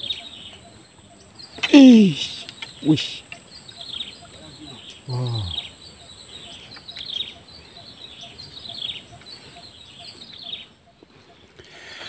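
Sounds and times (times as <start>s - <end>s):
bird chirping: 0.0s - 12.0s
insects droning: 0.0s - 12.0s.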